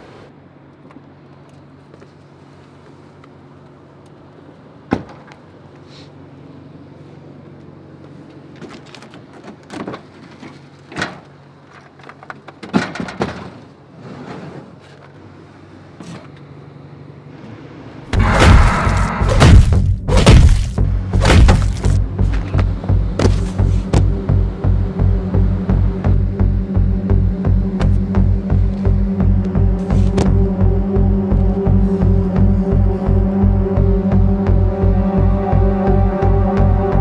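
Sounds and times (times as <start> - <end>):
loud thumping and crashing: 18.1 - 24.2.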